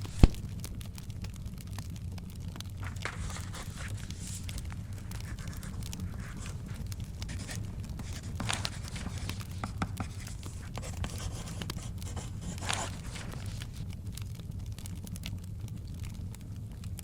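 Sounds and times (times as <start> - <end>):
book page turning: 0.0 - 0.6, 2.6 - 13.9
wood fire crackling and popping: 0.0 - 17.0.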